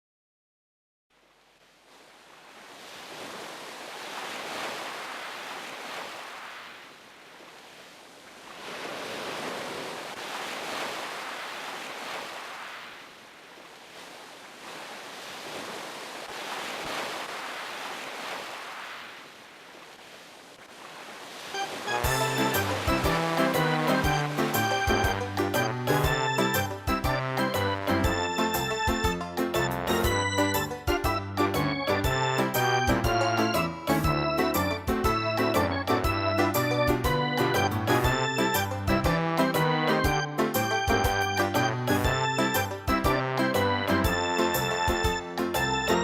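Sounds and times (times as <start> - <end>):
sea waves breaking on shore: 1.2 - 27.1
music: 21.6 - 46.0.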